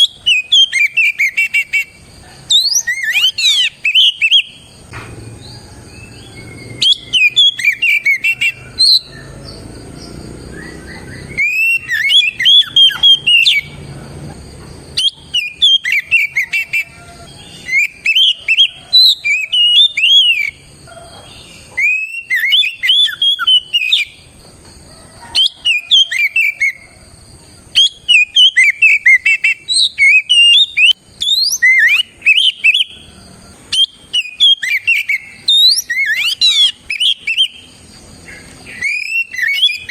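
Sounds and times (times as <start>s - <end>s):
songbird whistling song: 0.0s - 39.9s.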